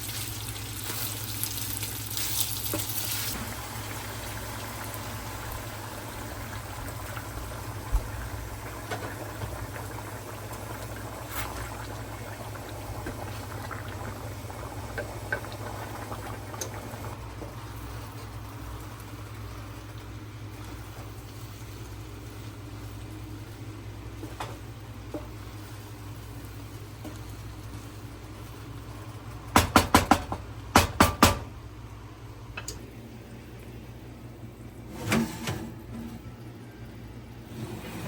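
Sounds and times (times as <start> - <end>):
pot bubbling and hissing: 0.0 - 29.6.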